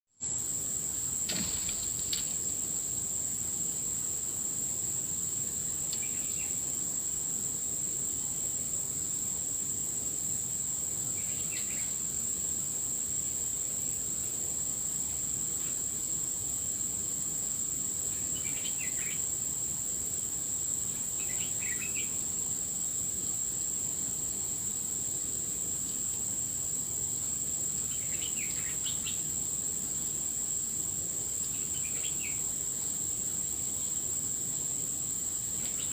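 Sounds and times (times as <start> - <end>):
insects droning: 0.2 - 35.9
low background noise: 0.2 - 35.9
bird chirping: 6.0 - 6.6, 11.2 - 12.0, 21.2 - 22.2, 27.9 - 29.2, 31.5 - 32.4.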